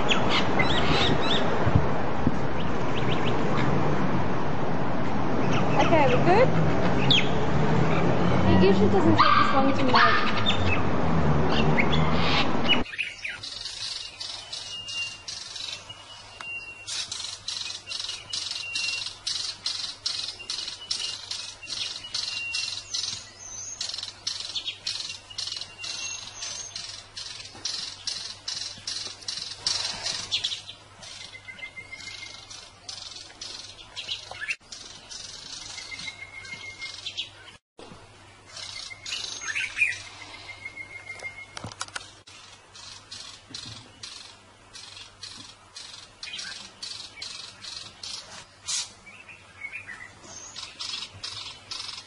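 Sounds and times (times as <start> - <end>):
small bird chirping rapidly: 11.6 - 37.6, 38.5 - 52.0
thin whistled bird notes: 12.4 - 37.4, 38.6 - 41.6.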